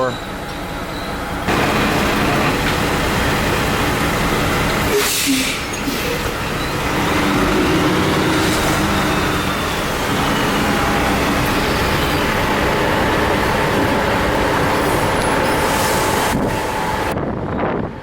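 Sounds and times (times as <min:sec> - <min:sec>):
elevator machinery running: 0:00.2 - 0:04.9, 0:05.6 - 0:17.2
truck diesel engine running: 0:00.2 - 0:17.2.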